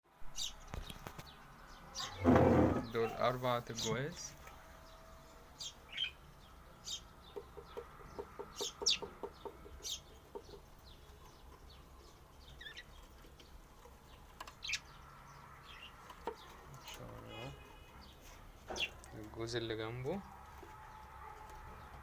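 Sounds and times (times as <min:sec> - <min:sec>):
budgerigars chirping: 0:04.8 - 0:11.8, 0:12.4 - 0:13.0, 0:14.1 - 0:19.0.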